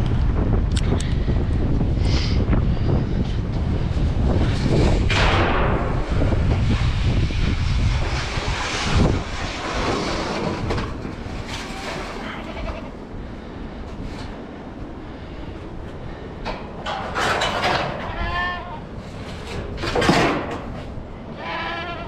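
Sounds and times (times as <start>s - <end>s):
wind buffeting microphone: 0.0s - 22.0s
loud rushing noise: 1.7s - 16.2s.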